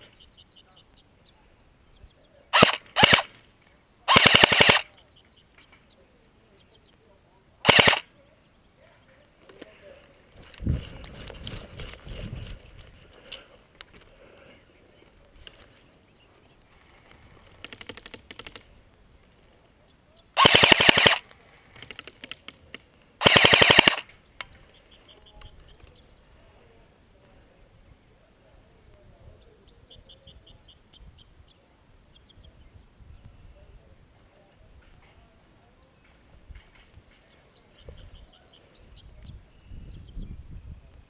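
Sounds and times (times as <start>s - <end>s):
faint gunfire bursts: 2.5s - 3.4s, 4.1s - 5.0s, 7.6s - 8.1s, 20.4s - 21.2s, 23.2s - 24.1s
airsoft rifle full-auto bursts: 2.6s - 3.4s, 4.1s - 4.9s, 7.6s - 8.1s, 20.4s - 21.2s, 23.2s - 24.1s.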